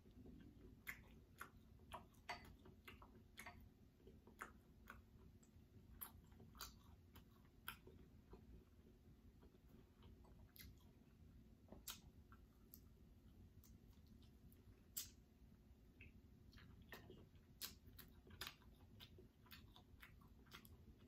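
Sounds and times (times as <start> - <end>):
faint chewing: 0.0 - 21.0
sharp clicks and smacks: 13.6 - 15.3.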